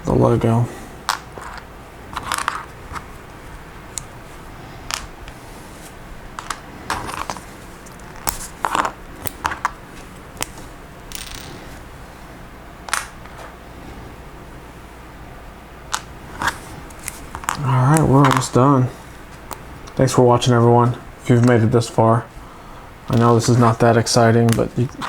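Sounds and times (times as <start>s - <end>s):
soft rustle: 2.1s - 8.6s
plastic pieces clicking and clattering: 6.4s - 9.8s.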